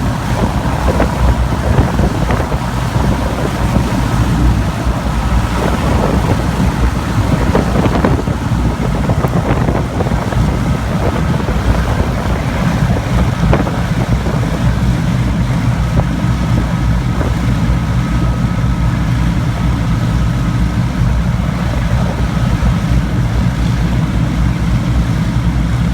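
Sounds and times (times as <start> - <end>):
piston aircraft engines droning: 0.0 - 25.9
wind buffeting microphone: 0.0 - 25.9.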